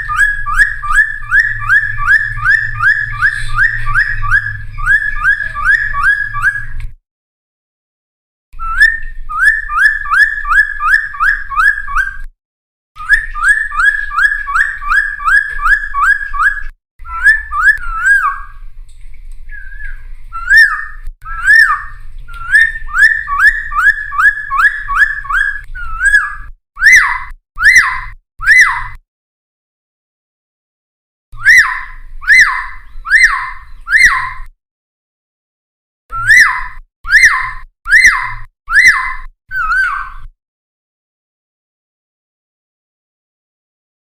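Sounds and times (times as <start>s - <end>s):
bird whistling song: 0.0s - 6.9s, 8.6s - 12.3s, 13.0s - 18.7s, 19.5s - 29.0s, 31.4s - 34.5s, 36.1s - 40.3s.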